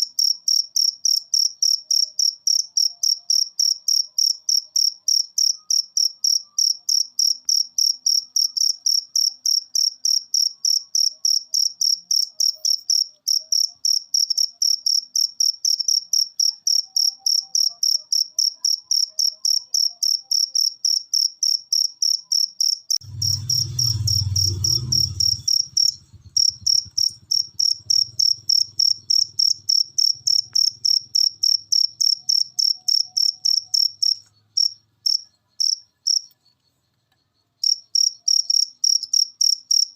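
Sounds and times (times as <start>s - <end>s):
cricket chirping: 0.0s - 39.9s
low rumble: 23.0s - 29.7s.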